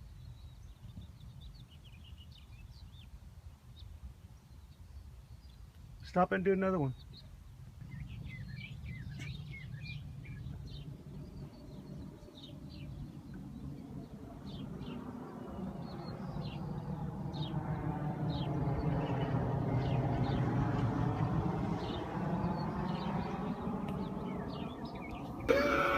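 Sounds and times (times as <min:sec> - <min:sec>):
small birds chirping: 0:06.8 - 0:17.5.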